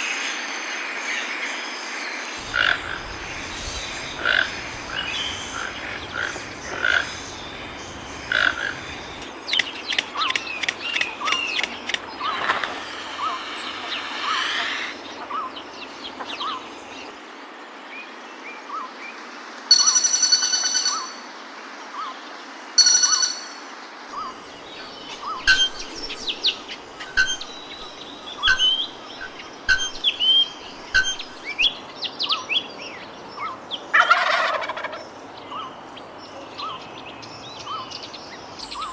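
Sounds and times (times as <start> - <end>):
birds chirping and whistling: 2.4 - 17.2, 24.2 - 33.8, 36.6 - 38.9
loud held bird call: 2.4 - 17.2, 24.2 - 31.8.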